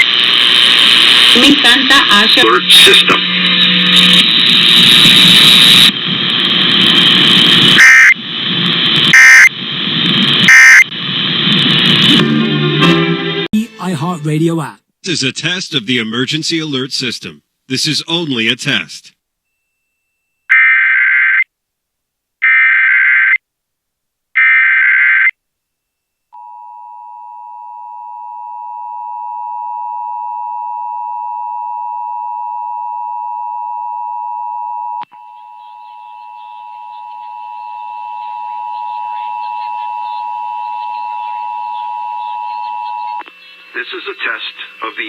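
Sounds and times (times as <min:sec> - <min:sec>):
data header bursts: 0:07.1 - 0:08.2, 0:09.1 - 0:09.6, 0:10.4 - 0:11.0.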